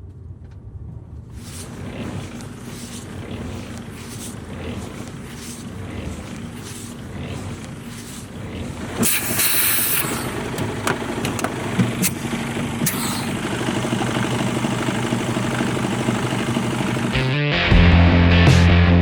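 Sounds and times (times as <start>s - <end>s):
diesel truck engine running: 1.3s - 18.6s
air hiss: 1.4s - 10.6s
music: 17.2s - 19.0s.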